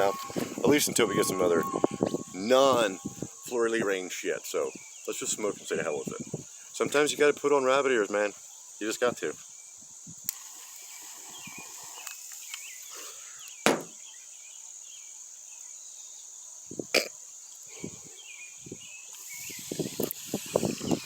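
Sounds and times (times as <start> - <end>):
crickets chirring: 0.0 - 21.0
soft knocks: 13.7 - 14.0.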